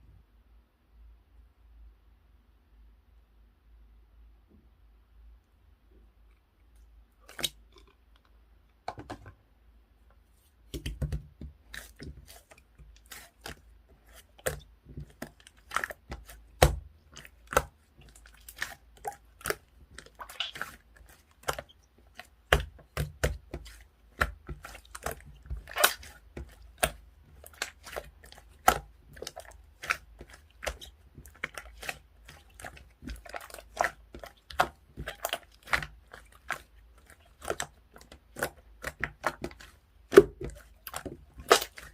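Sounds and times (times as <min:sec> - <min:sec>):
slime clicking and popping: 0:18.5 - 0:20.8.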